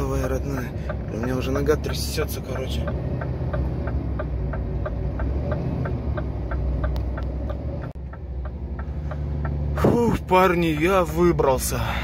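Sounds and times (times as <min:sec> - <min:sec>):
steady clicking: 0:00.0 - 0:11.8
truck diesel engine pulling: 0:00.0 - 0:12.0.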